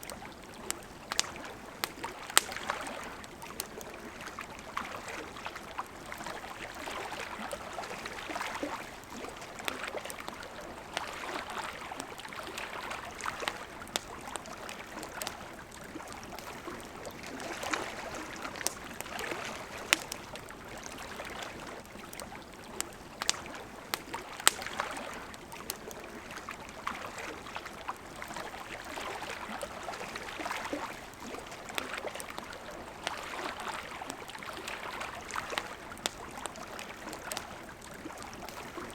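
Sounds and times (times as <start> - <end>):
campfire crackling and popping: 0.0 - 38.9
river water rushing: 16.4 - 21.6.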